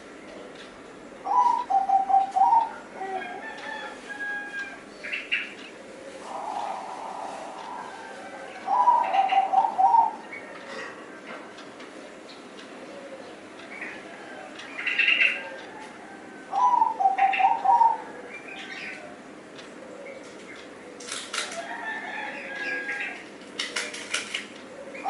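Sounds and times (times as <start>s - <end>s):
birds chirping: 0.0s - 3.8s, 4.6s - 11.2s, 11.9s - 21.1s
dove cooing: 1.1s - 4.8s, 5.4s - 11.2s, 12.8s - 19.2s, 19.8s - 21.2s, 21.8s - 25.0s.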